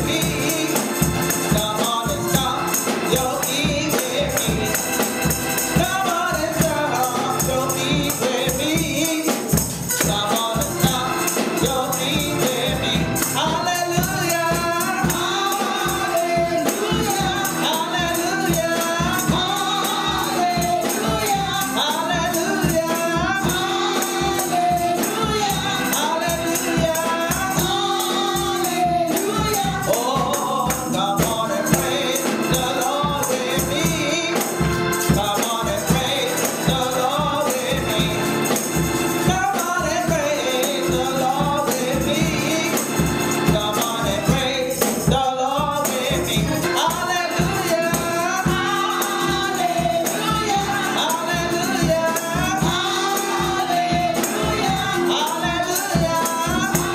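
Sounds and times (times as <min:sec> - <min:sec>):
choir singing gospel music: 0:00.0 - 0:56.9
tambourine beat: 0:00.0 - 0:56.9.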